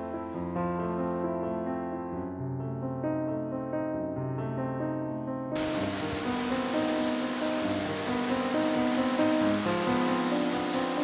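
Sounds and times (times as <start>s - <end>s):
slow piano melody: 0.0s - 11.0s
falling water rushing: 5.6s - 11.0s.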